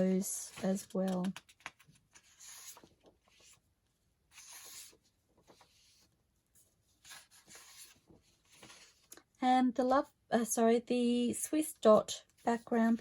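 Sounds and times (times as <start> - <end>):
paper sheets rustling: 0.1 - 3.6, 4.3 - 6.1, 6.7 - 9.1.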